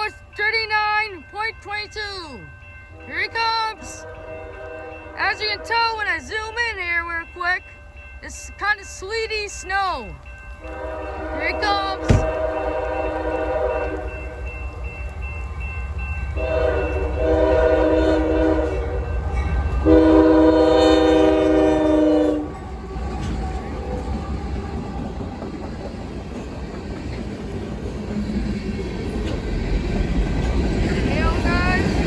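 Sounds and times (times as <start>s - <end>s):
freight train rumble and wheel noise: 0.0s - 32.0s
locomotive air horn blasts: 3.9s - 5.8s, 10.6s - 14.1s, 16.4s - 19.0s, 19.8s - 22.5s.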